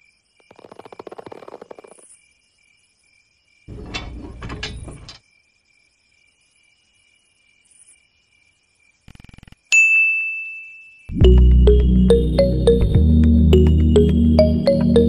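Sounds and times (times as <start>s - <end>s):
mechanical clatter: 3.7s - 5.2s.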